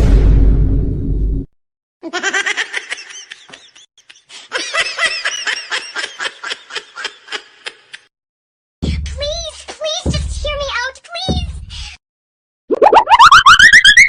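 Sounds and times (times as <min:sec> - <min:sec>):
high-pitched laughter: 0:02.0 - 0:08.1.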